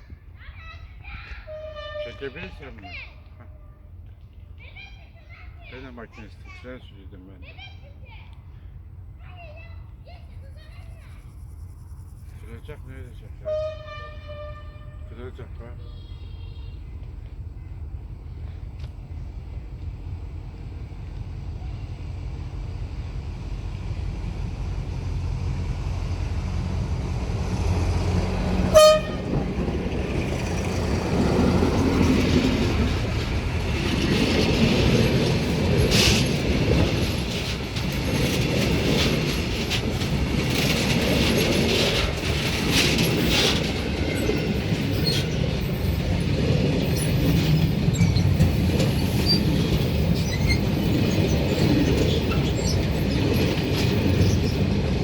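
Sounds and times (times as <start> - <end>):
diesel locomotive approaching: 0.0 - 55.0
freight wagons rumbling on rails: 0.0 - 55.0
train horn toot: 1.5 - 2.8, 13.4 - 15.4, 28.6 - 29.9.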